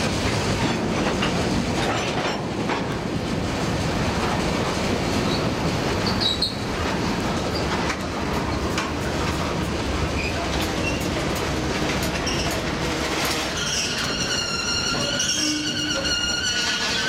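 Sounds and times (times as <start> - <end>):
freight train rumbling: 0.0 - 17.0
wheels clicking on rail joints: 0.0 - 17.0
high-pitched wheel squeal: 13.5 - 17.0.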